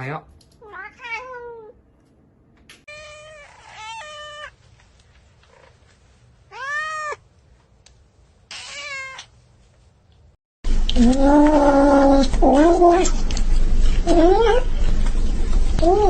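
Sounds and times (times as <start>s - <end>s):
cat meowing: 0.6s - 1.8s, 2.9s - 4.6s, 6.5s - 7.2s, 8.5s - 9.3s.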